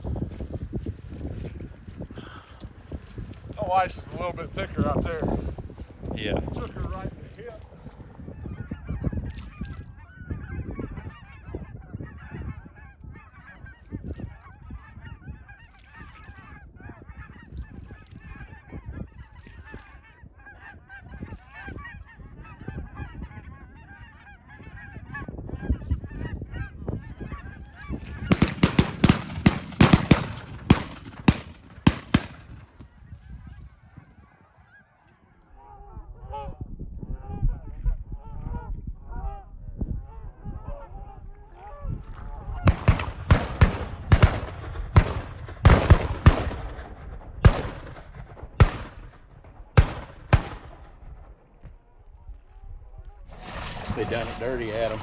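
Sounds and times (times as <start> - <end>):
geese honking: 7.5 - 36.3, 53.4 - 55.0.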